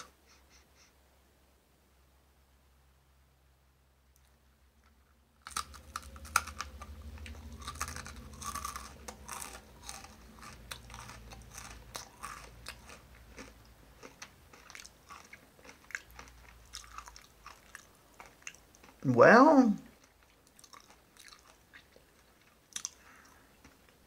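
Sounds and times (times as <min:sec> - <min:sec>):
person crunching food: 0:04.2 - 0:19.0, 0:19.9 - 0:24.0.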